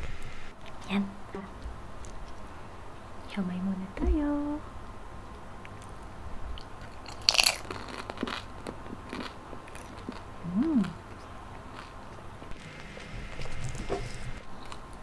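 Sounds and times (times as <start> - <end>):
crunchy chewing: 6.6 - 15.0.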